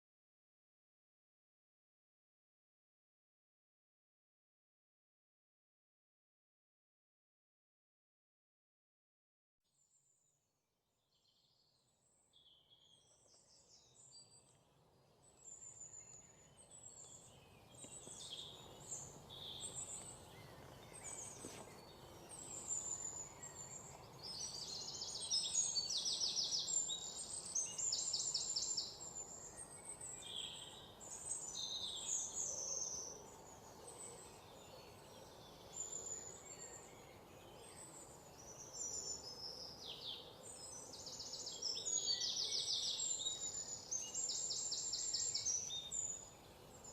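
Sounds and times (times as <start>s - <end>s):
birds chirping and trilling: 12.4s - 46.9s.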